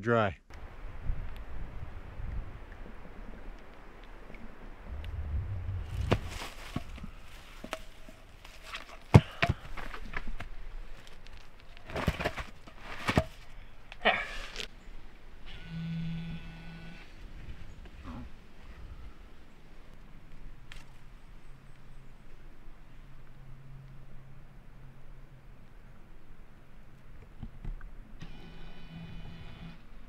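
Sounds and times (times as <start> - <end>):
low rumble: 4.4 - 7.5.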